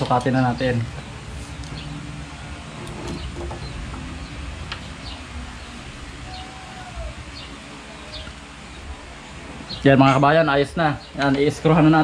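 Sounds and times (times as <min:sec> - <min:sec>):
birds chirping: 0:00.0 - 0:12.0
low background noise: 0:00.0 - 0:12.0
low gliding bird call: 0:03.0 - 0:09.8.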